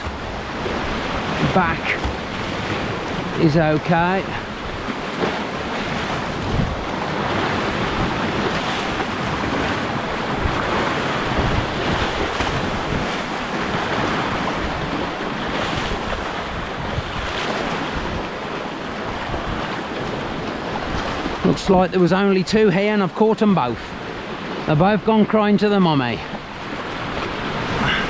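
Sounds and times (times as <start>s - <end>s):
wind buffeting microphone: 0.0s - 21.6s
waves washing on rocky shore: 0.0s - 28.0s.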